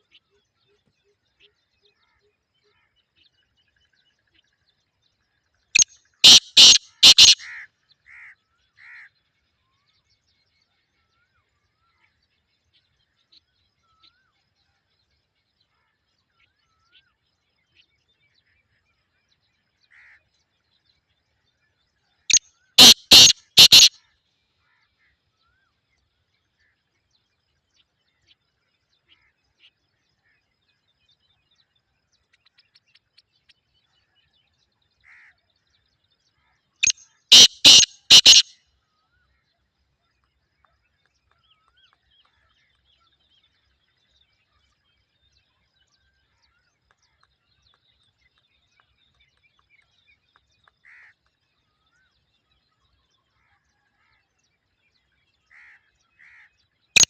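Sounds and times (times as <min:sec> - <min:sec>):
bird calling loud notes: 0:05.8 - 0:07.5, 0:22.8 - 0:23.9, 0:36.8 - 0:38.5.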